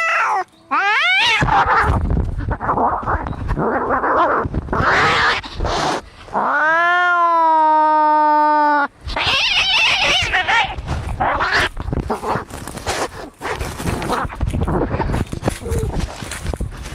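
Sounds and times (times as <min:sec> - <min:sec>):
cat yowling: 0:00.0 - 0:02.0, 0:04.8 - 0:11.7
cats screeching: 0:00.0 - 0:11.8.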